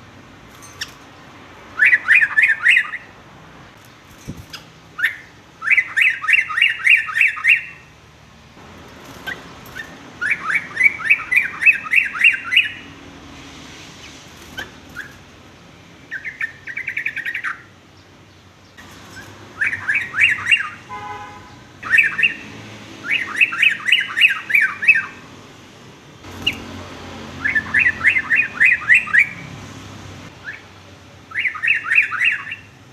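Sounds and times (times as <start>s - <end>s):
bird chattering song: 1.8s - 7.9s, 9.0s - 13.0s, 14.4s - 25.3s, 26.2s - 29.6s, 30.3s - 32.8s.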